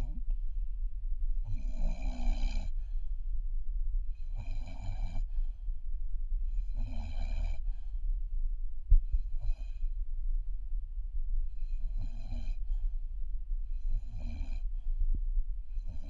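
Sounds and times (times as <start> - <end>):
puppy snoring: 0.0 - 0.3, 1.4 - 3.0, 4.1 - 5.4, 6.5 - 8.0, 9.0 - 10.0, 11.5 - 12.9, 13.7 - 15.0, 15.7 - 16.0.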